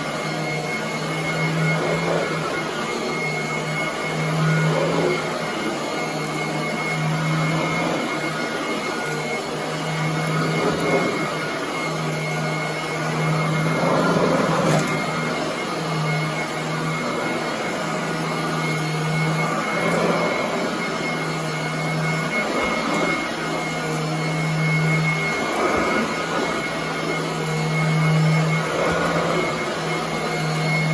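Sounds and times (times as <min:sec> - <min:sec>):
vacuum cleaner running on carpet: 0:00.0 - 0:30.9.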